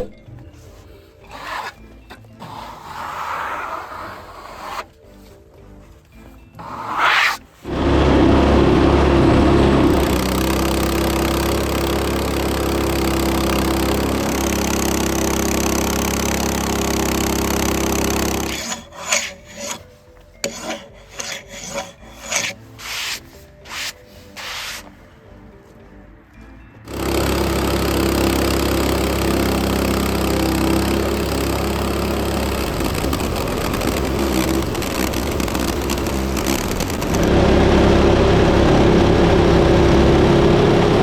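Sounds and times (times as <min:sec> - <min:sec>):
scraping and rubbing: 0:00.6 - 0:08.0, 0:18.1 - 0:25.0
bandsaw cutting log: 0:01.2 - 0:05.0, 0:06.6 - 0:24.9, 0:26.9 - 0:41.0.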